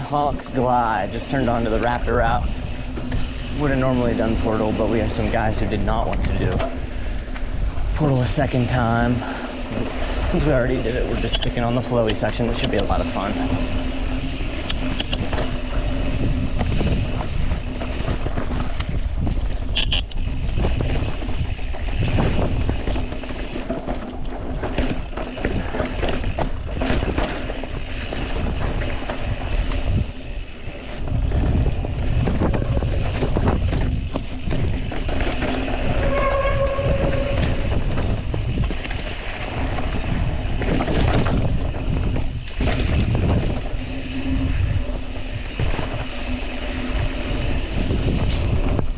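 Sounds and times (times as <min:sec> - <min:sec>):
bike rattling over bumps: 0:00.0 - 0:48.9
tires rolling over dirt and rock: 0:00.0 - 0:48.9
wind buffeting microphone: 0:00.0 - 0:48.9
brief squeal: 0:35.9 - 0:37.7.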